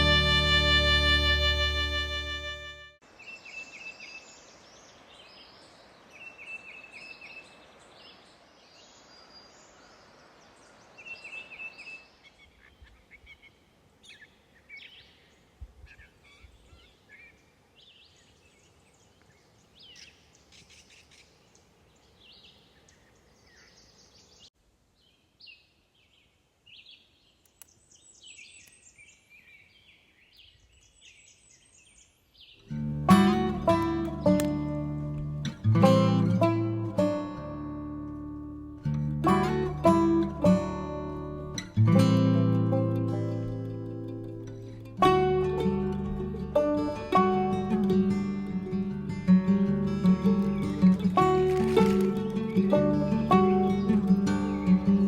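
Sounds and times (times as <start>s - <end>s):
soft steady hiss: 0.0s - 55.0s
songbirds singing and calling: 3.0s - 35.2s, 45.6s - 55.0s.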